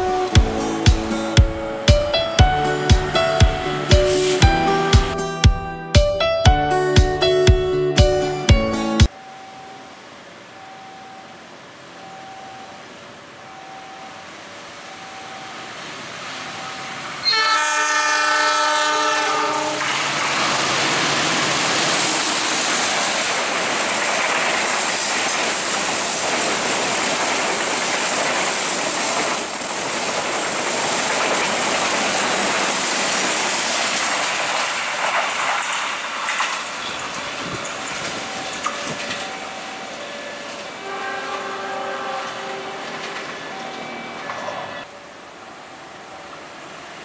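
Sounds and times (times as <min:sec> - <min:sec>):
locomotive horn blast: 0:17.2 - 0:20.0, 0:40.2 - 0:43.3
train wheels rumbling and clattering: 0:19.8 - 0:44.9.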